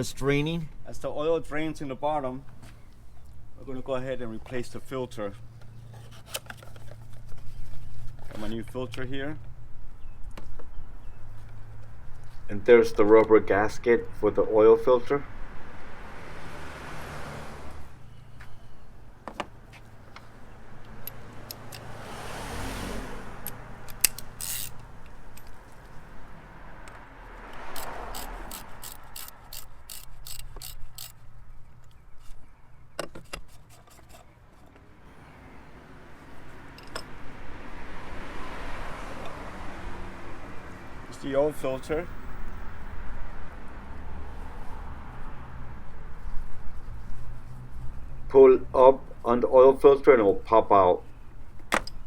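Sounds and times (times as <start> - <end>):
rubbing and rustling: 4.5 - 8.7.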